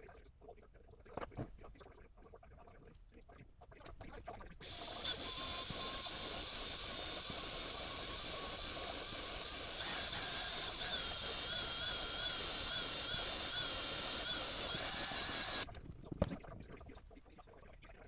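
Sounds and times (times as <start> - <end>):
motorized shop tool whining: 4.6 - 15.7.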